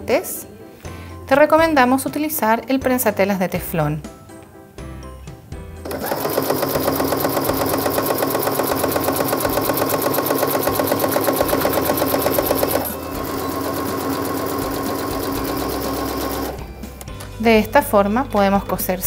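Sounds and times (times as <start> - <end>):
sewing machine stitching: 5.9 - 16.7.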